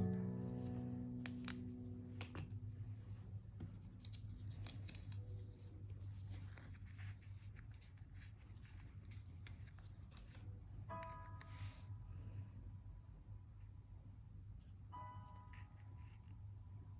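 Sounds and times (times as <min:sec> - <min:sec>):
held music chord: 0:00.0 - 0:03.5
steady low hum: 0:00.0 - 0:08.4
paper and stationery clicks: 0:03.6 - 0:11.6.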